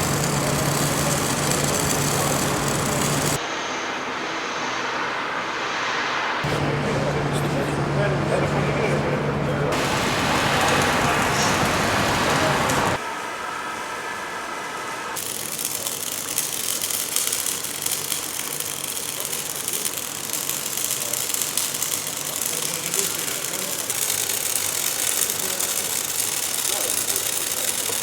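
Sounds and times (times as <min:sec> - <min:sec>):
welding arc crackling: 0:00.0 - 0:03.4, 0:09.7 - 0:13.0, 0:15.2 - 0:28.0.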